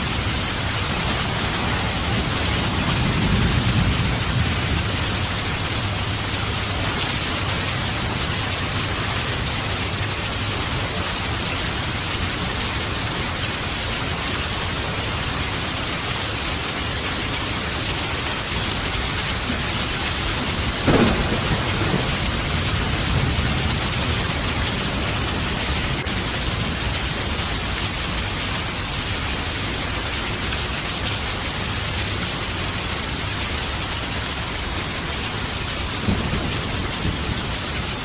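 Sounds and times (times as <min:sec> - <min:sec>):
thunder rumbling: 0:00.0 - 0:10.4, 0:17.4 - 0:29.4, 0:35.4 - 0:38.0
heavy rain hissing: 0:00.0 - 0:38.0
sharp thunderclap: 0:00.5 - 0:06.7, 0:20.5 - 0:26.3, 0:36.0 - 0:37.7.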